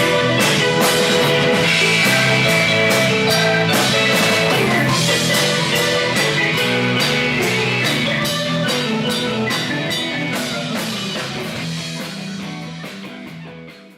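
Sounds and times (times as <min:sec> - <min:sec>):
live band playing: 0:00.0 - 0:13.9.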